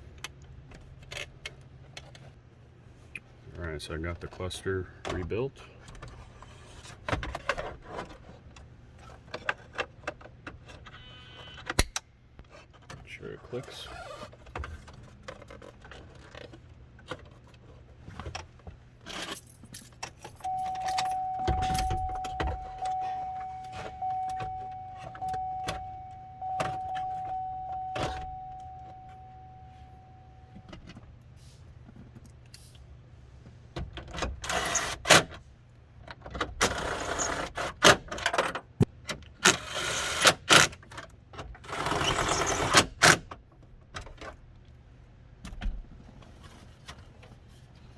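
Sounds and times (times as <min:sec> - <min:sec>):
steady high tone: 0:20.4 - 0:30.7.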